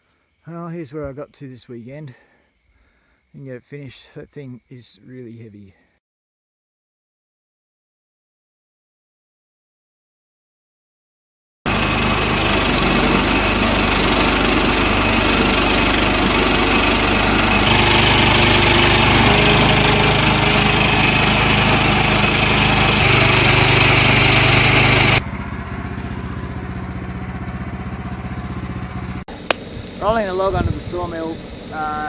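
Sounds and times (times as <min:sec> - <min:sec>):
small petrol engine running: 0:11.7 - 0:32.0.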